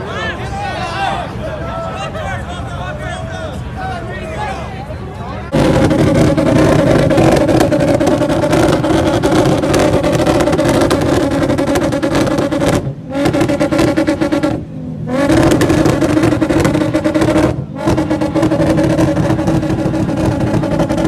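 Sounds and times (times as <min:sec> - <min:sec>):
car engine revving: 0:05.5 - 0:21.0.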